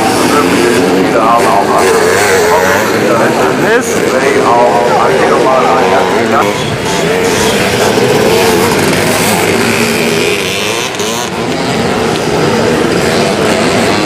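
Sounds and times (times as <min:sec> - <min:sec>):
motocross motorcycles revving: 0:00.0 - 0:14.0.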